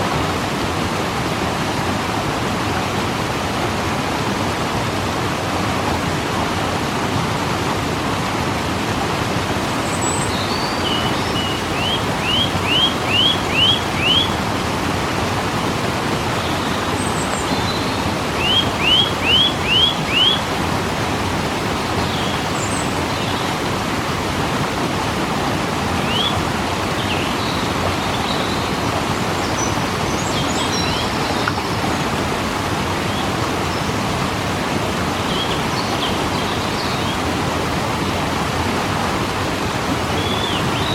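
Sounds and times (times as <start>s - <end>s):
waterfall rushing: 0.0s - 40.9s
bird call with rising notes: 9.9s - 14.4s, 16.5s - 20.4s
bird chirps: 9.9s - 14.4s, 17.0s - 20.4s.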